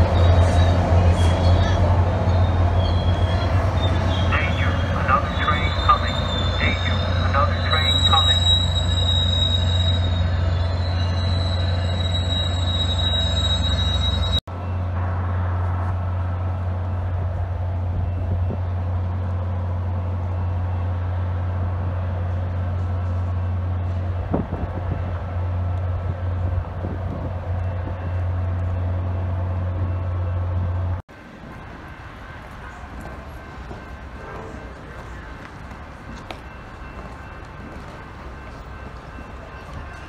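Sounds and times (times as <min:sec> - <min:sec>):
train wheel squeal: 0:00.0 - 0:14.8
diesel locomotive humming: 0:00.0 - 0:40.0
passing train rumble: 0:00.0 - 0:40.0.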